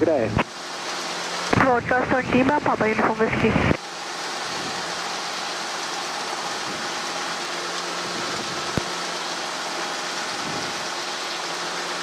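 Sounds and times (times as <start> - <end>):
radio static hiss: 0.0 - 0.5, 1.5 - 3.8.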